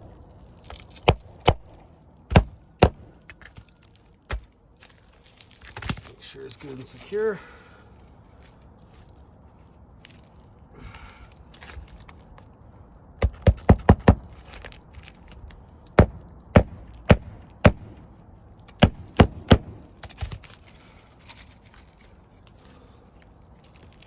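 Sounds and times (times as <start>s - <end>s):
hammer driving nails: 13.2s - 14.2s.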